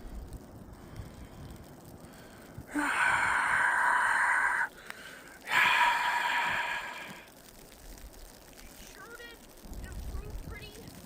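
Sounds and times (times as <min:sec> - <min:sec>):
breaths blown into microphone: 0:02.1 - 0:07.3.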